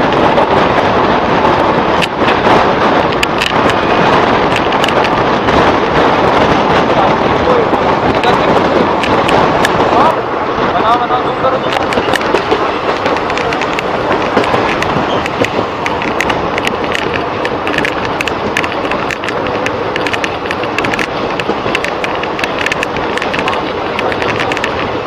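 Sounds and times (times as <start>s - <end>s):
train wheels rumbling and clattering: 0.0s - 25.0s.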